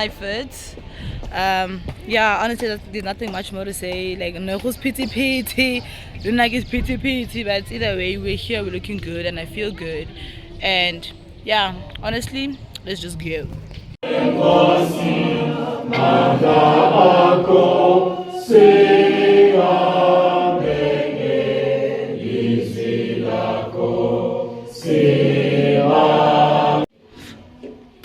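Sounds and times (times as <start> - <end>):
choir singing: 14.0 - 26.9.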